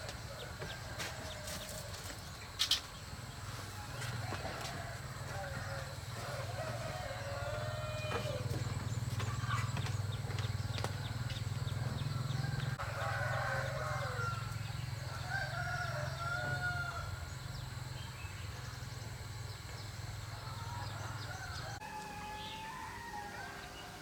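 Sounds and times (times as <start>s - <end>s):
roosters crowing: 0.0s - 2.4s, 3.0s - 24.0s
steady low hum: 0.0s - 22.5s.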